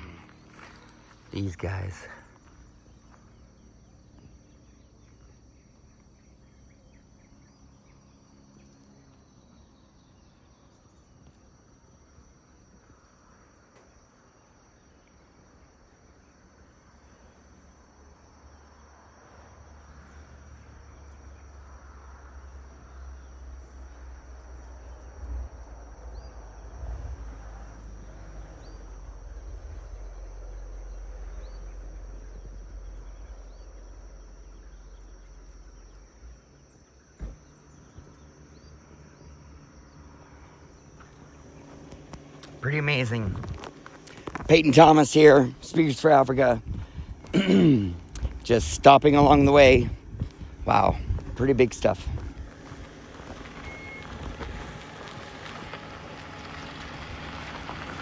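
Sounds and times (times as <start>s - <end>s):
insects trilling: 0.0s - 58.0s
low rumble: 25.4s - 36.2s, 48.0s - 58.0s.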